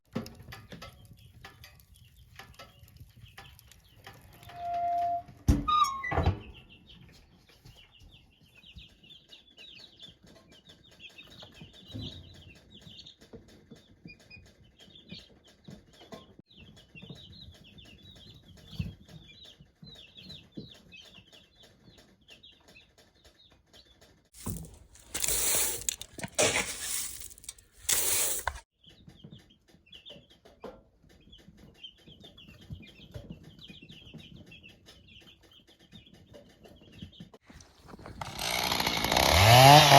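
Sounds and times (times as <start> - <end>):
chicks peeping: 6.6 - 24.2, 28.8 - 37.3.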